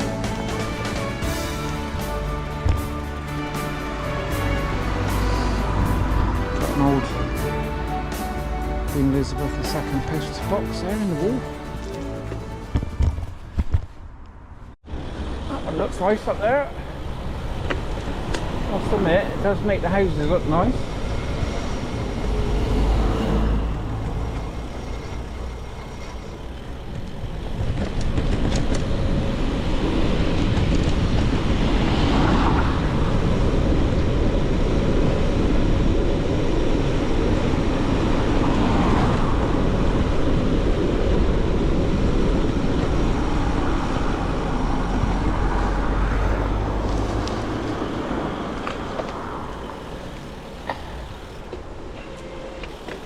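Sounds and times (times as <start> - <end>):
wind rushing: 0.0 - 14.8, 28.9 - 50.4
bicycle tyre noise on road: 0.0 - 53.0.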